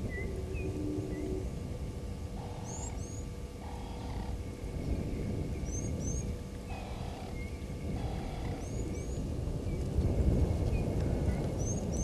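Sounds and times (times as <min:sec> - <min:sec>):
steady low rumble: 0:00.0 - 0:12.0
bird whistling: 0:02.4 - 0:04.3.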